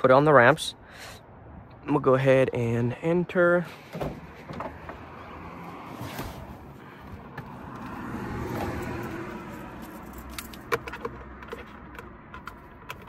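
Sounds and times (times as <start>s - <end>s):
rustling of person entering car: 5.9s - 8.9s.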